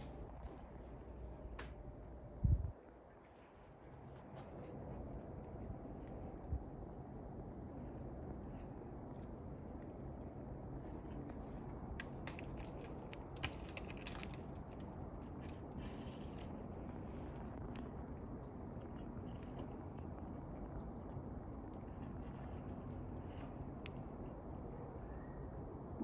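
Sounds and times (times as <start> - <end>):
low background rumble: 0.0 - 26.0
small birds chirping: 10.8 - 26.0.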